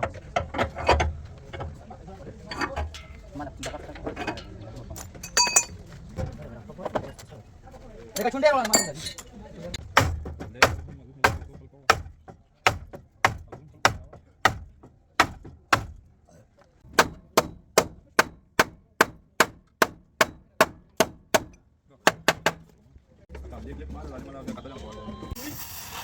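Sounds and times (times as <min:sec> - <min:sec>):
hammer striking car body panel: 0:09.8 - 0:16.1, 0:16.9 - 0:22.7.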